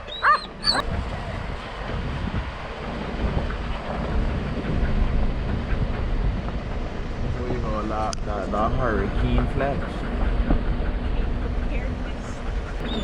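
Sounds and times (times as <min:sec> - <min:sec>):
dog whining: 0:00.0 - 0:00.8, 0:12.8 - 0:13.0
wind buffeting microphone: 0:00.0 - 0:13.0.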